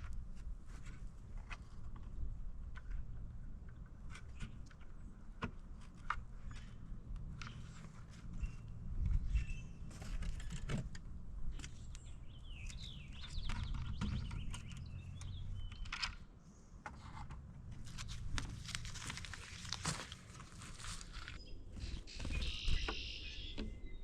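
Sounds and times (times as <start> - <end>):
wild birds chirping: 6.3 - 10.9, 11.5 - 16.9, 17.8 - 24.0.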